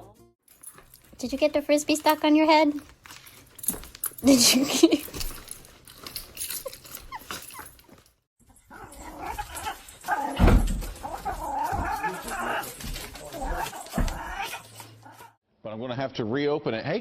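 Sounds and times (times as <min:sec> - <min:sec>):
dog whining and yipping: 0:06.3 - 0:08.0, 0:08.7 - 0:15.3.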